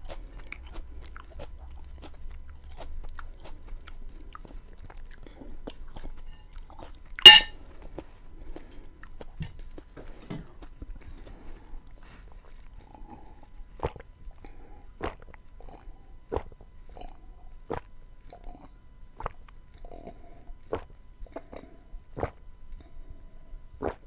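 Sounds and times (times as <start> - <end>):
chewing with wet mouth sounds: 0.0 - 7.1, 10.6 - 24.0.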